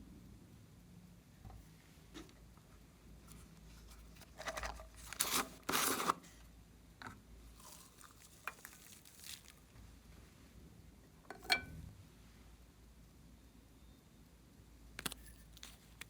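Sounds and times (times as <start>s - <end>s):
slime crackling and tearing: 7.6s - 9.6s.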